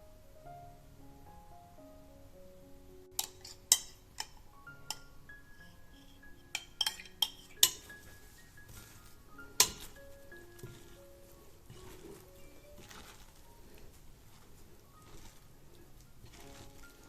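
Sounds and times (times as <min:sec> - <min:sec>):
quiet background music: 0:00.0 - 0:17.0
utensils clinking against dishware: 0:03.2 - 0:08.1, 0:09.5 - 0:10.0.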